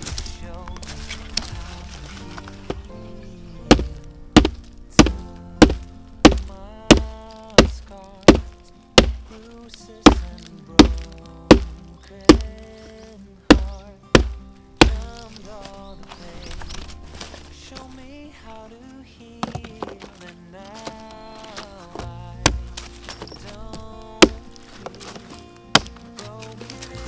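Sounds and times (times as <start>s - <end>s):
background music: 0.0s - 27.0s
heavy blade chopping: 3.7s - 15.6s, 20.8s - 26.9s.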